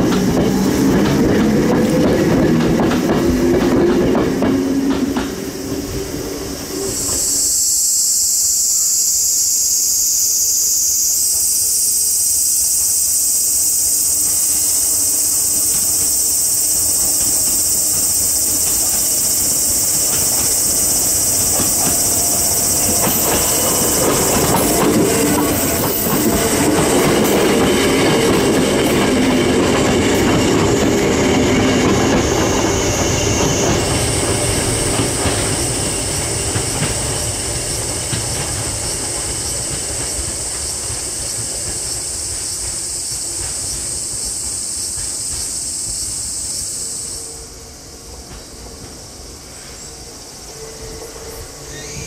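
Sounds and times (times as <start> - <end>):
cicadas chorus: 0.0 - 52.0
electric train rumble: 0.0 - 52.0
wheels squealing on curve: 5.4 - 36.4, 50.8 - 52.0.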